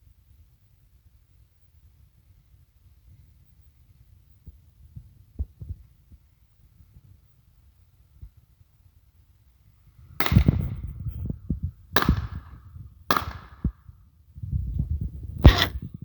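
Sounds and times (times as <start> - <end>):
hunting gun shots: 10.2 - 10.9, 12.0 - 13.8, 15.4 - 15.8.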